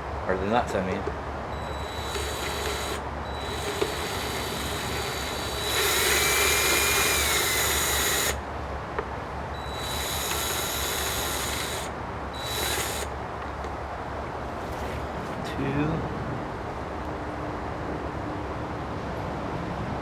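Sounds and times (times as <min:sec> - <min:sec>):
cordless drill running: 0:01.5 - 0:08.5, 0:09.6 - 0:13.1.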